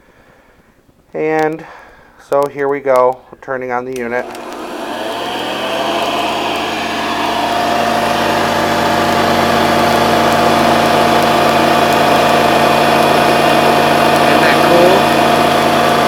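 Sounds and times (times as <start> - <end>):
vacuum cleaner motor: 4.1 - 16.0.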